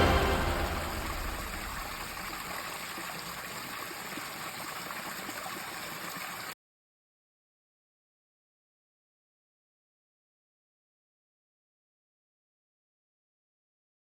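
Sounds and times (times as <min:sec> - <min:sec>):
music: 0:00.0 - 0:01.9
stream rushing: 0:00.0 - 0:06.2.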